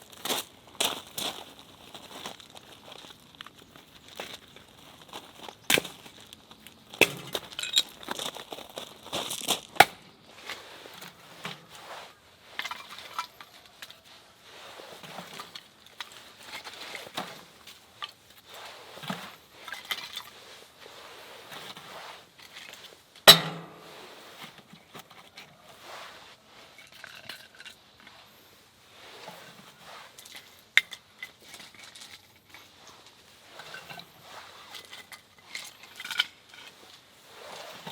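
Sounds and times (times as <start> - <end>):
metallic clinks of camping gear: 2.0 - 11.8, 12.5 - 14.2, 15.0 - 20.7, 29.2 - 37.9.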